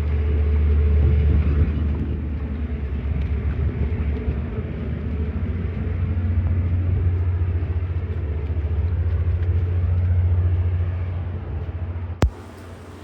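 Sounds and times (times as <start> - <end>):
generator engine running: 12.2 - 13.0.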